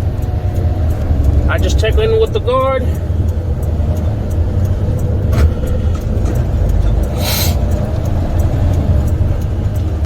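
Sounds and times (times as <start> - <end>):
diesel truck engine running: 0.0 - 10.0
short hiss: 7.1 - 7.6.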